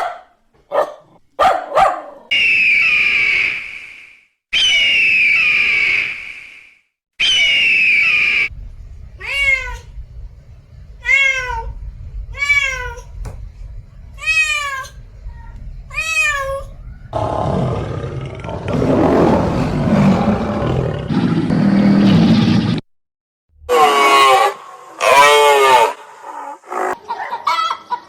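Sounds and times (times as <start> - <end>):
cat meowing: 9.2 - 9.9, 11.0 - 13.2, 14.2 - 17.2
harsh noisy animal call: 14.2 - 21.3, 23.7 - 27.0.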